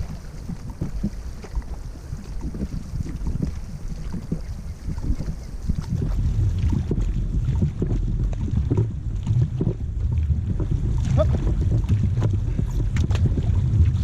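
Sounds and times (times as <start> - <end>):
paddles splashing in water: 0.0 - 14.0
wind buffeting microphone: 0.0 - 14.0.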